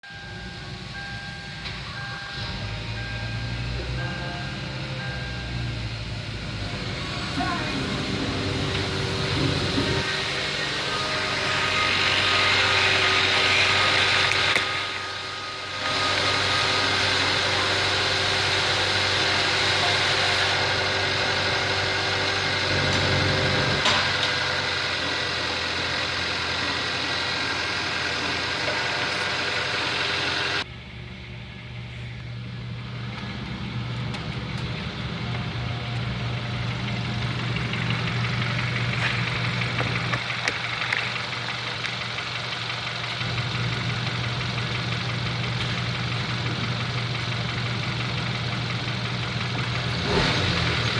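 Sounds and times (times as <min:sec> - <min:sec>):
car engine idling: 0:00.0 - 0:50.9.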